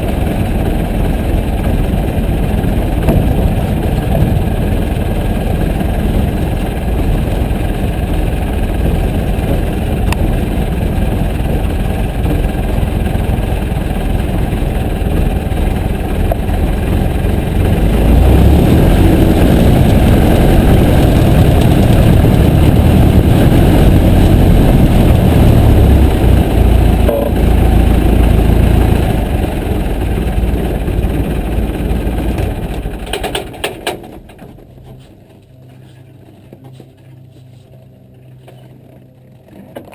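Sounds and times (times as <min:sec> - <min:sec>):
light aircraft engine running: 0:00.0 - 0:39.9.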